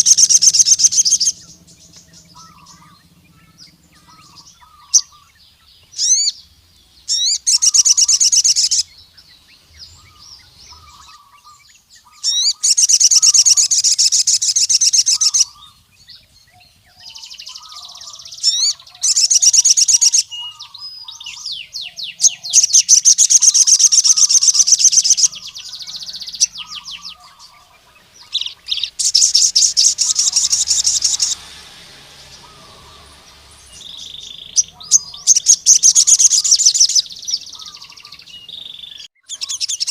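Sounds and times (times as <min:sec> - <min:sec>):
bird singing rapid trills: 0:00.0 - 0:39.9
faint low bird chirps: 0:00.0 - 0:39.9.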